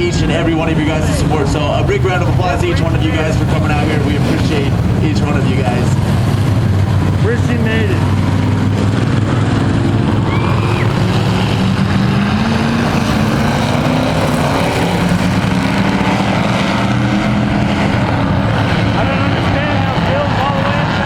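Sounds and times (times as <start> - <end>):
race truck engines running: 0.0 - 21.0.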